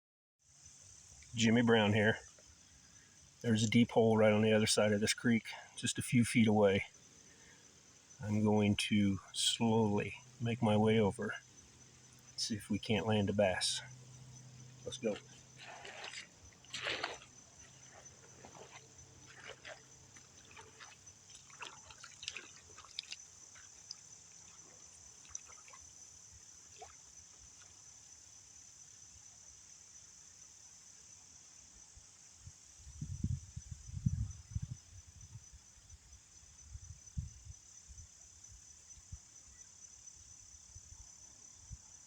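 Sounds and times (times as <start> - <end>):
high drone of insects: 0.4 - 42.0
water splashing around legs: 14.8 - 26.0, 26.6 - 27.7.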